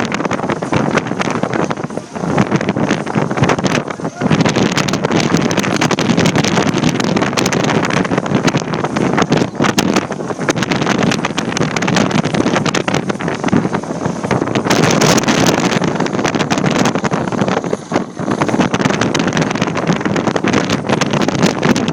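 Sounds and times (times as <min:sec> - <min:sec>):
wind buffeting microphone: 0:00.0 - 0:21.9.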